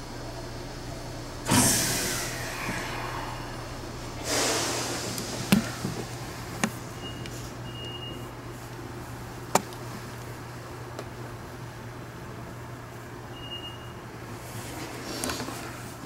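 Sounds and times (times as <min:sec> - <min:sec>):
train cab low hum: 0:00.0 - 0:16.0
air hisses: 0:01.4 - 0:06.9
faint short beep: 0:13.4 - 0:14.0.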